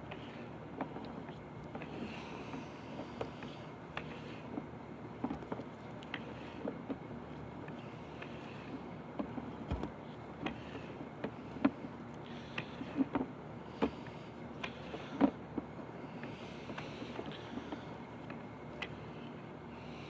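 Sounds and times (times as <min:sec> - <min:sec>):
equipment knocks and clicks: 0:09.7 - 0:10.0.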